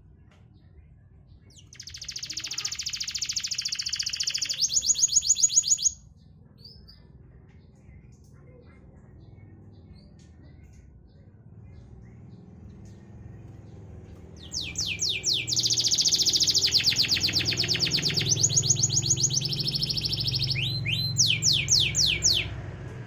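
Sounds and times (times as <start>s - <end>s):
canary singing: 1.4s - 6.0s, 12.7s - 23.0s.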